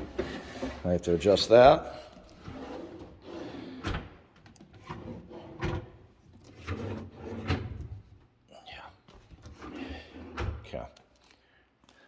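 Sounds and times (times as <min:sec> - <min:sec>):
cabinet drawers opening and shutting: 0:00.0 - 0:01.7, 0:02.3 - 0:08.1, 0:09.2 - 0:10.7.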